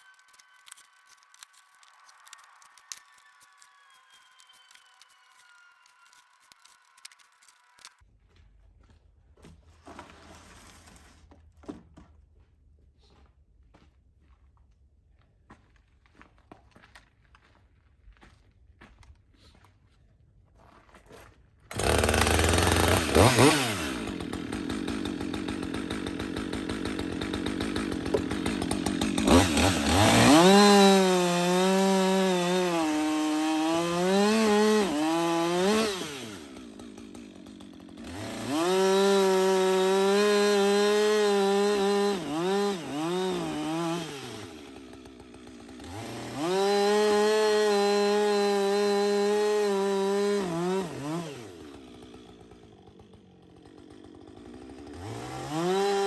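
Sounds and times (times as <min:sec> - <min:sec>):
chainsaw cutting wood: 0:00.0 - 0:08.0, 0:21.7 - 0:56.0.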